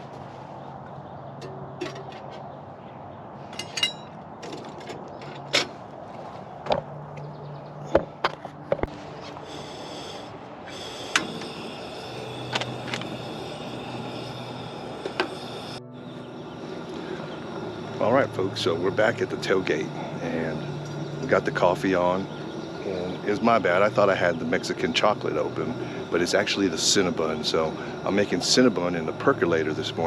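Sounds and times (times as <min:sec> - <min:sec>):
steady low hum: 0:06.2 - 0:30.0
hiss: 0:09.4 - 0:15.8.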